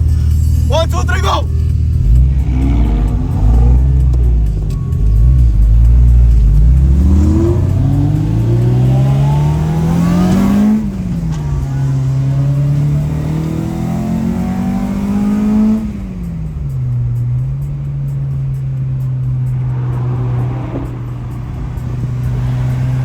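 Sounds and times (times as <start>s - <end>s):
car engine accelerating hard: 0.0s - 23.0s.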